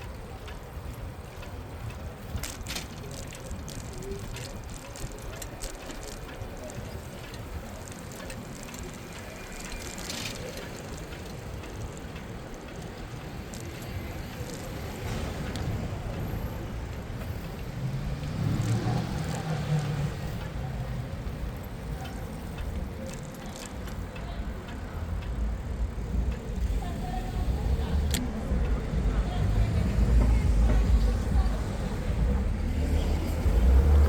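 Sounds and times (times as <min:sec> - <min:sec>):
wind and road noise: 0:00.0 - 0:34.0
motor vehicle passing close: 0:29.0 - 0:34.0.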